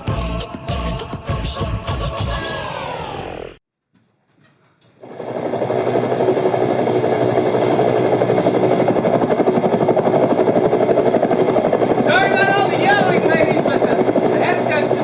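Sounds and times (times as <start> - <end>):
helicopter rotor beating: 5.0 - 15.0.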